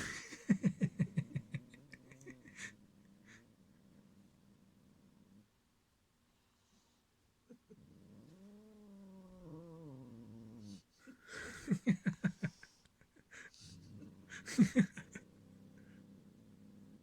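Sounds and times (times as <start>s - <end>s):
cat growling: 0.8s - 5.5s, 7.5s - 11.2s, 13.4s - 17.0s.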